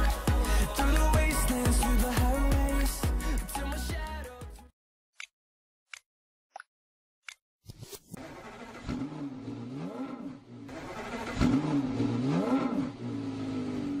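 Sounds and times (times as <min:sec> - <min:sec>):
click: 0:05.9 - 0:07.4
car engine revving: 0:08.2 - 0:14.0.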